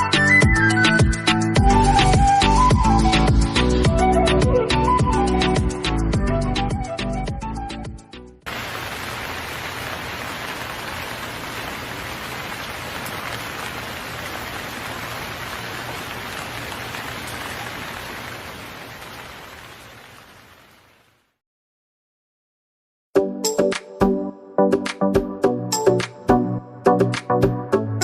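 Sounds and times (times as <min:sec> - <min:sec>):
falling water hissing: 0:08.5 - 0:21.0.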